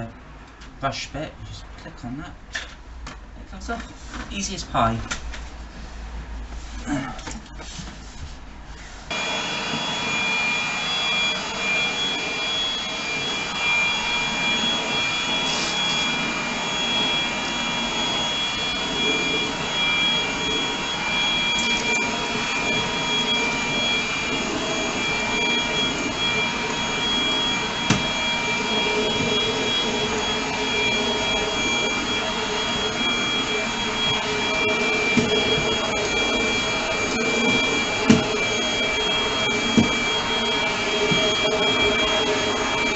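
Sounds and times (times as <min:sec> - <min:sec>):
stick vacuum cleaner whining: 0:09.1 - 0:42.9.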